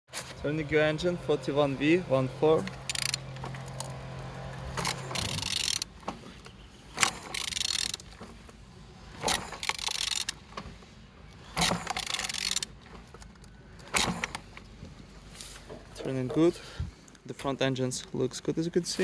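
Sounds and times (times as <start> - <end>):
ratcheting tool turning engine: 2.5 - 6.0, 7.0 - 8.3, 9.2 - 10.5, 11.5 - 14.6.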